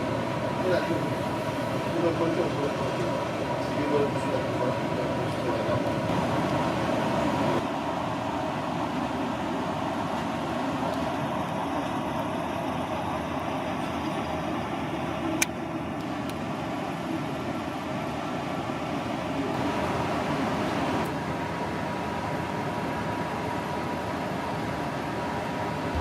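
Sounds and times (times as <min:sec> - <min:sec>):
ship under way: 0:00.0 - 0:26.0.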